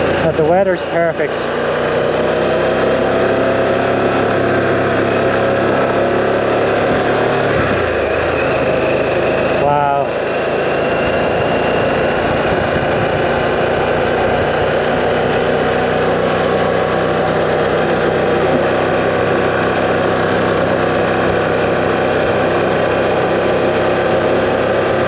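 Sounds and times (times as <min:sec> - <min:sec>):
motorcycle engine cruising: 0:00.0 - 0:25.0
wind rush on microphone: 0:06.7 - 0:09.2, 0:11.0 - 0:15.4.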